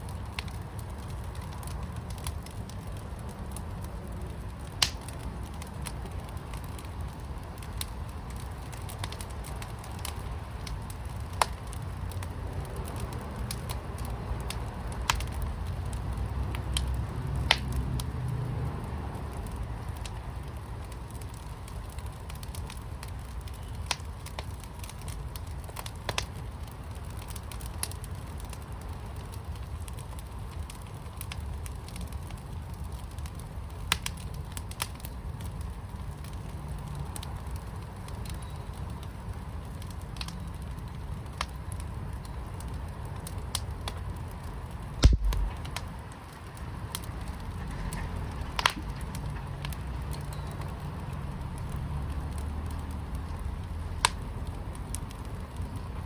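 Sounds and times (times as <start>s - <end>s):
wood fire crackling and popping: 0.0s - 56.0s
loud thump: 45.0s - 45.6s.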